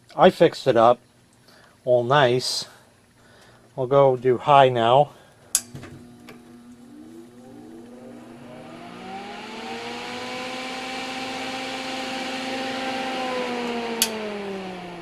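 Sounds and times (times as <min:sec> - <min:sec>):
fan whine and air rush: 0:04.3 - 0:15.0
sharp click: 0:13.7 - 0:14.2.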